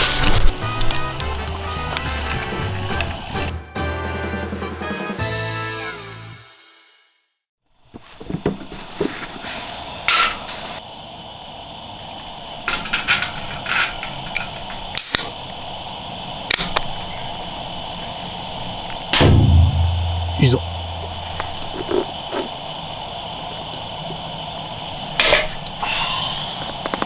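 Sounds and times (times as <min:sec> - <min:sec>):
high-pitched insect chirr: 0:00.0 - 0:03.5, 0:09.6 - 0:27.0
sharp cracks and knocks: 0:16.5 - 0:17.0.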